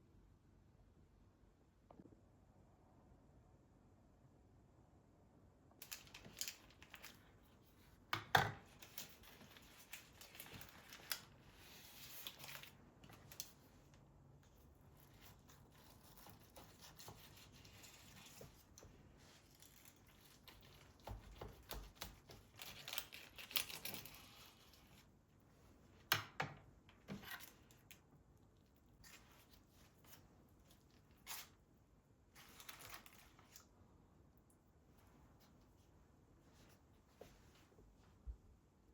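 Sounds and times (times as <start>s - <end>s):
rustling and tearing: 5.8s - 8.0s, 8.6s - 25.2s, 27.0s - 31.6s, 32.3s - 33.8s.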